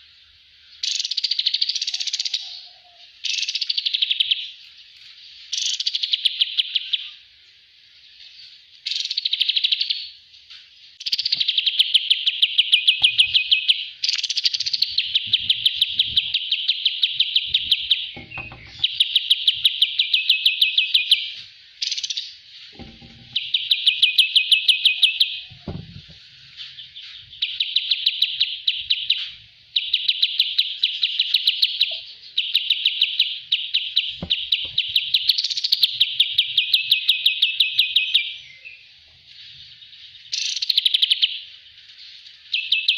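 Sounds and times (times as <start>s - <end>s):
bird singing rapid trills: 0.7s - 7.3s, 10.9s - 26.1s, 26.7s - 38.9s, 39.7s - 42.9s.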